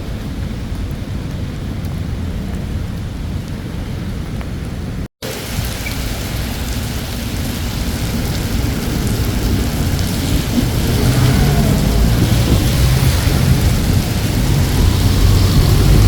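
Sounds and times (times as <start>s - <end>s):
heavy rain hiss: 5.0s - 16.0s
deep low rumble: 8.0s - 16.0s.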